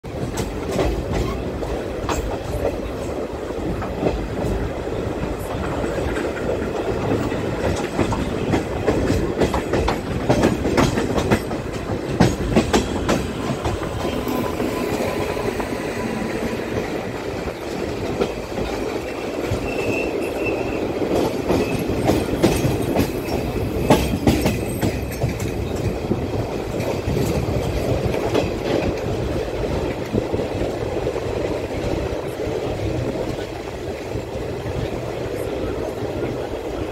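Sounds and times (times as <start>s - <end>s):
train wheels on rail: 0.0s - 36.9s
brief high squeal: 19.6s - 20.8s.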